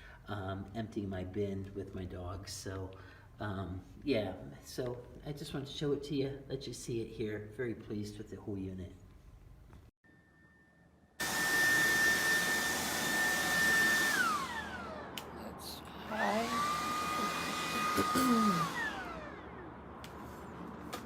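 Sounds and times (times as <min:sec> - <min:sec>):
vacuum motor whining: 0:11.2 - 0:21.0.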